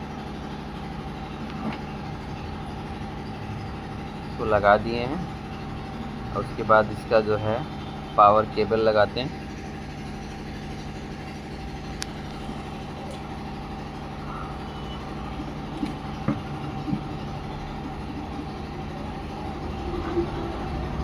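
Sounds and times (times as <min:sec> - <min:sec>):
steady mechanical drone: 0:00.0 - 0:21.0
cables clicking and knocking: 0:15.7 - 0:17.4.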